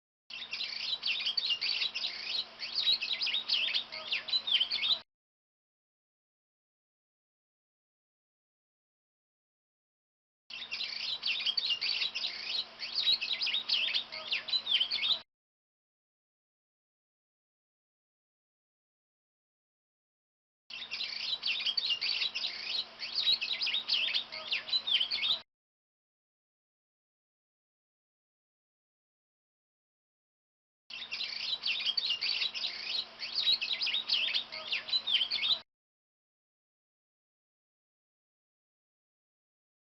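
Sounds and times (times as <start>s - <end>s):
bird song with high chirps: 0.3s - 5.0s, 10.5s - 15.2s, 20.7s - 25.4s, 30.9s - 35.6s.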